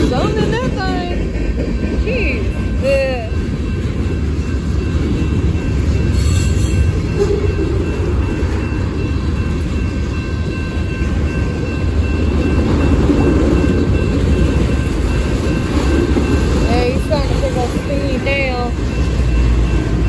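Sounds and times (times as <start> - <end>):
freight train rumbling on rails: 0.0 - 20.0.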